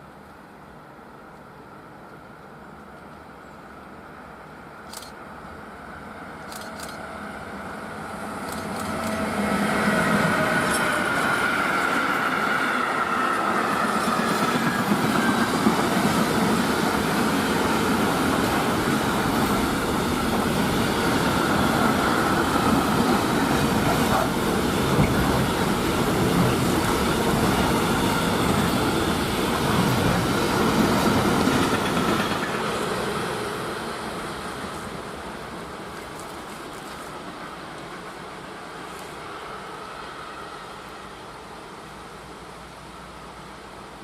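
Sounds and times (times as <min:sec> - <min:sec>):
train rumbling past: 0:00.0 - 0:44.0.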